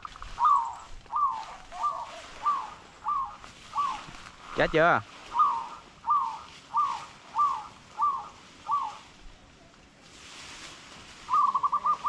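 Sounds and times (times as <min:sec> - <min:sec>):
bird whistling: 0:00.1 - 0:04.1, 0:05.3 - 0:09.0, 0:11.3 - 0:12.0.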